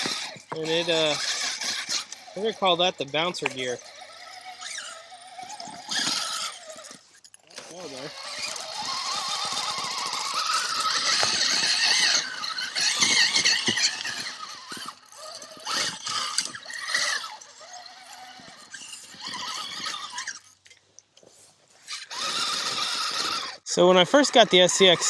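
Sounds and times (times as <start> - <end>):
electric motor whining: 0.0 - 20.6, 21.9 - 25.0.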